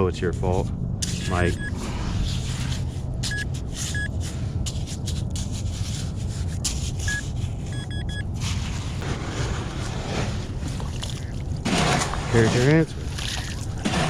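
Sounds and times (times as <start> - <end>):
low rumble: 0.0 - 6.8
metal detector beeps: 1.1 - 1.8, 3.2 - 4.1, 7.1 - 8.2.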